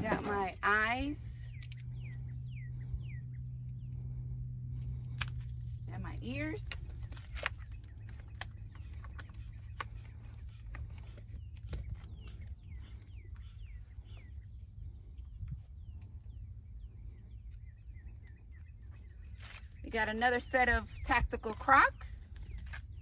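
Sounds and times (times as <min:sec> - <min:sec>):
birds chirping: 0:00.0 - 0:23.0
low outdoor rumble: 0:00.0 - 0:23.0
faint clicks: 0:01.4 - 0:01.9.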